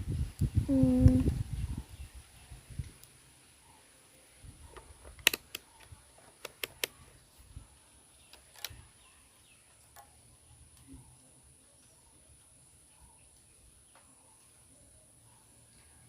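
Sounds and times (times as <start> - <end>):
test probes clicking and tapping: 6.4 - 7.0.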